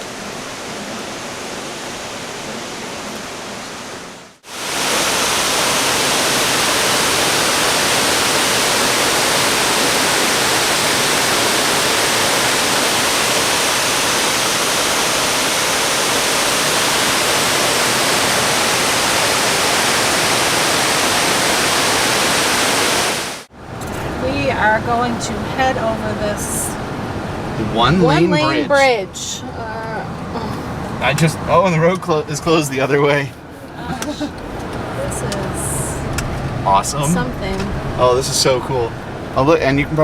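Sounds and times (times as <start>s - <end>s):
waterfall rushing: 0.0s - 23.5s.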